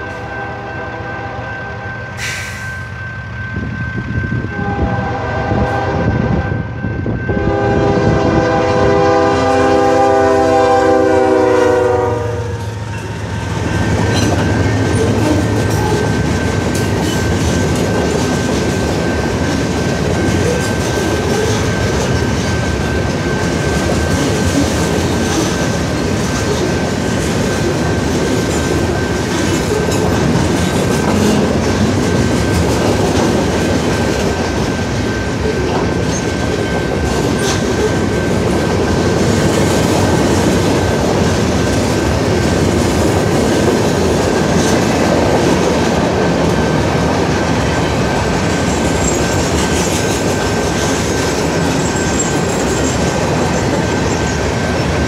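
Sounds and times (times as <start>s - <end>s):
locomotive air horn blasts: 0.0s - 2.9s, 4.5s - 12.8s
freight cars rumbling and clattering: 12.7s - 55.0s.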